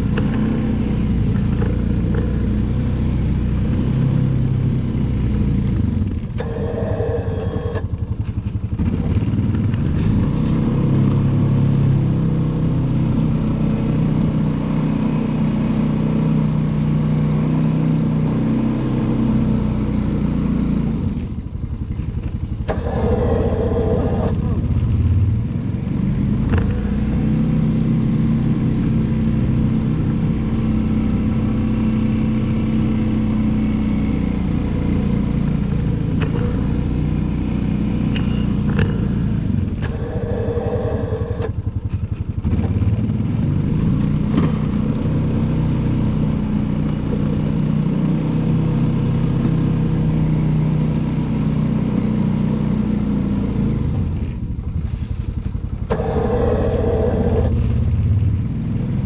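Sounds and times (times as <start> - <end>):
engine running: 0.0 - 59.0.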